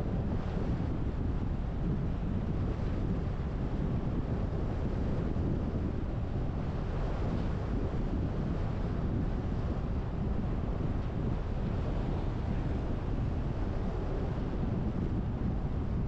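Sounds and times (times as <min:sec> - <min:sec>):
car wind and road noise: 0:00.0 - 0:16.0.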